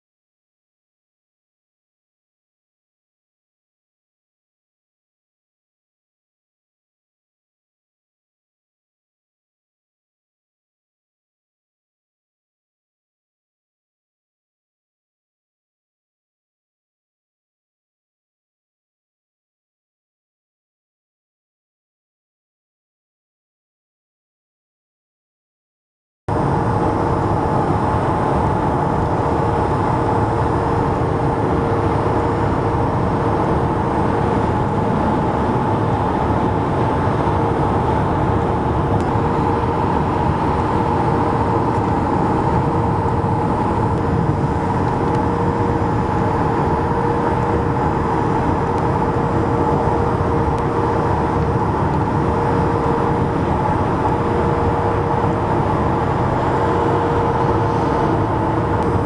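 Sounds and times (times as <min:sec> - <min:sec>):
constant hum: 0:26.3 - 0:59.0
highway traffic passing: 0:26.3 - 0:59.0.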